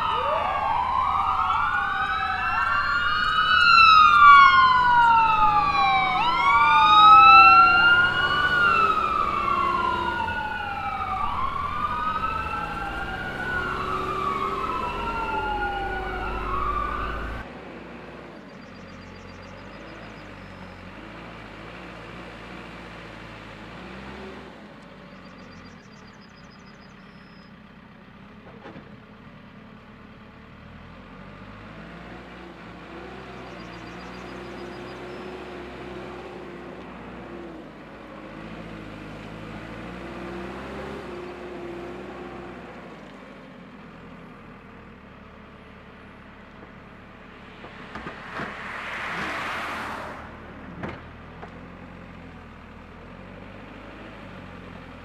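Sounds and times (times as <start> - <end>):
siren wailing: 0.0 - 17.5, 33.1 - 36.8, 46.7 - 51.0.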